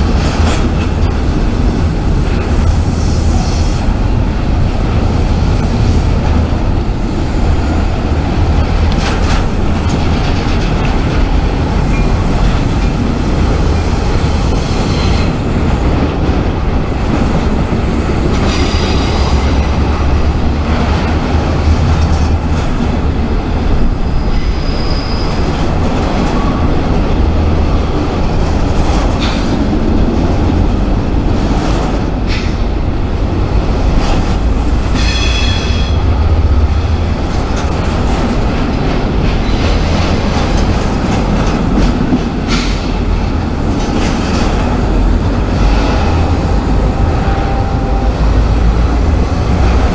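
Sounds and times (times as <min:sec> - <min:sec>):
freight train cars rumbling past: 0:00.0 - 0:49.9
wheels clicking over rail joints: 0:00.0 - 0:49.9
high wheel squeals: 0:18.4 - 0:20.5, 0:23.9 - 0:27.0.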